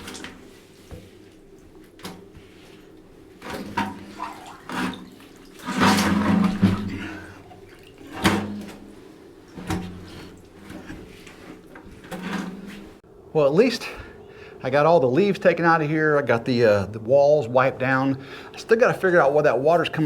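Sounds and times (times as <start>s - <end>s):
water splashing and sloshing: 0.0s - 13.1s
knocks and scrapes: 3.4s - 7.2s, 9.6s - 13.0s.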